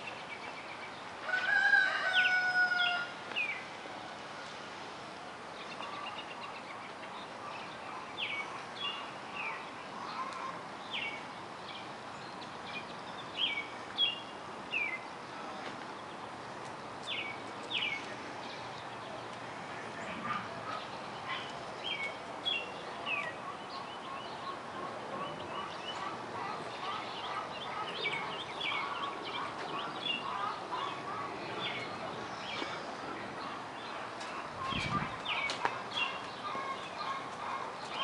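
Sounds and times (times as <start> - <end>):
birds chirping: 0.0 - 4.5, 5.2 - 38.0
steady background hiss: 0.0 - 38.0.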